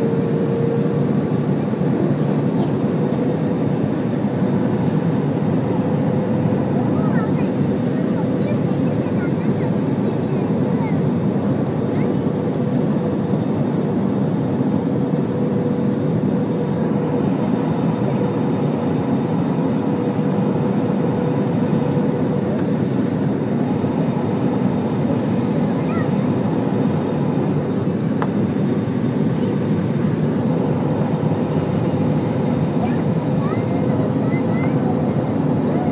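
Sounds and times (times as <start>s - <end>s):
jet engines and airflow rushing: 0.0s - 35.9s
steady hum: 0.0s - 35.9s.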